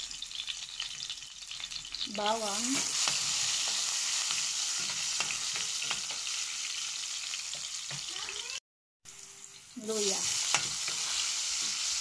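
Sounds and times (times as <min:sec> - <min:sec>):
garlic and onion sizzling in oil: 0:00.0 - 0:12.0
spoon scraping a pan: 0:02.6 - 0:08.1, 0:10.2 - 0:12.0.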